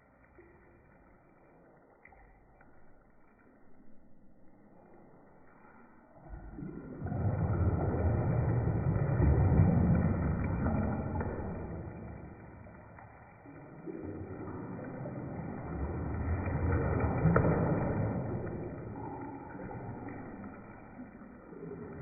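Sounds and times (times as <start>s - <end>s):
bathwater sloshing: 6.8s - 22.0s.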